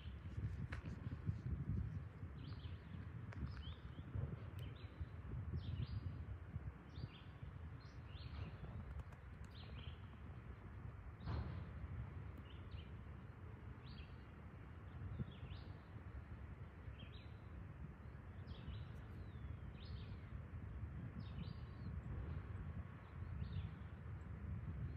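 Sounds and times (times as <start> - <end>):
steady low rumble: 0.0 - 24.9
small birds chirping: 2.4 - 6.2, 6.9 - 10.4, 18.3 - 20.3.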